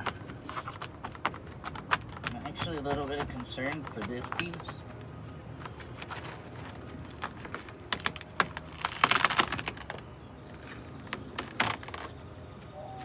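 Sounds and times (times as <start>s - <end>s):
rotten wood cracking and clicking: 0.0s - 12.3s
wood crackling: 0.0s - 13.0s.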